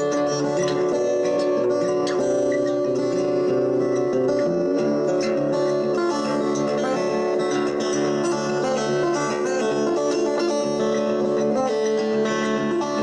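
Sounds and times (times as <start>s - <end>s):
guitar instrumental music: 0.0s - 13.0s.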